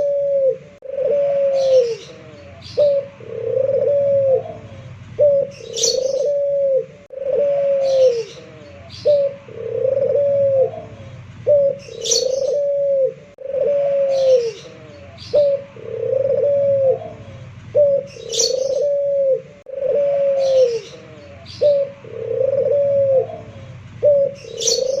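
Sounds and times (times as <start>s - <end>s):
dove cooing: 0.0s - 25.0s
small bird chirping: 1.5s - 3.1s, 4.6s - 6.4s, 10.9s - 12.7s, 14.1s - 15.7s, 17.1s - 19.0s, 23.4s - 25.0s.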